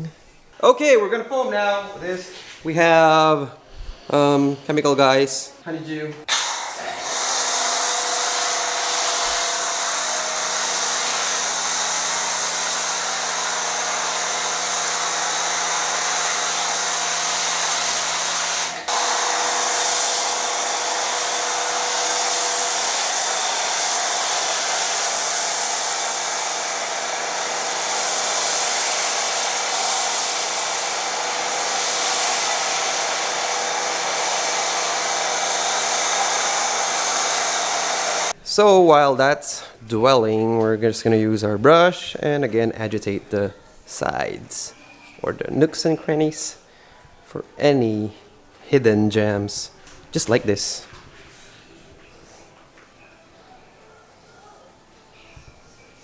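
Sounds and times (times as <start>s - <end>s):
foam spray hissing: 6.3s - 38.4s
pressure washer motor hum: 6.3s - 38.4s.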